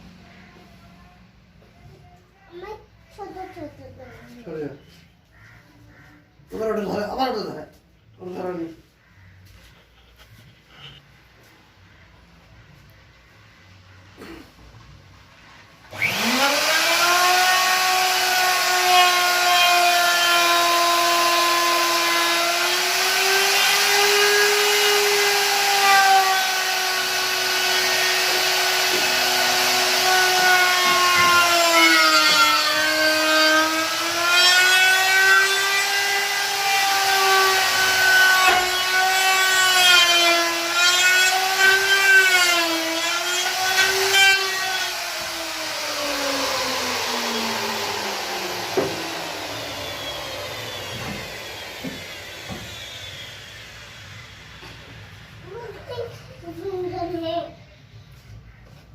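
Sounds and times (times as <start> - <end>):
wood router whining: 15.8 - 56.0.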